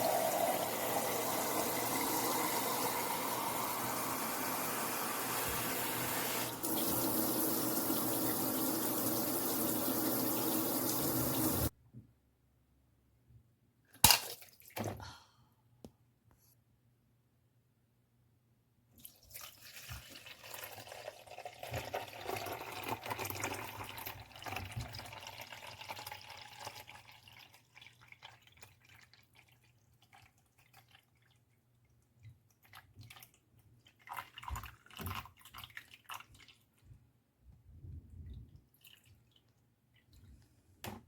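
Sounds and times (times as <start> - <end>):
water running and splashing: 0.0 - 11.7.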